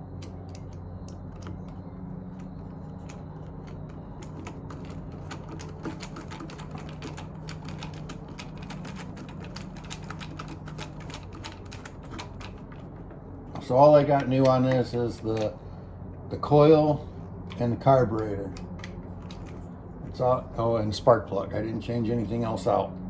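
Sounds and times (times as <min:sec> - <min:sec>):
steady low hum: 0:00.0 - 0:23.0
light clicks of small parts and tools: 0:13.5 - 0:15.6.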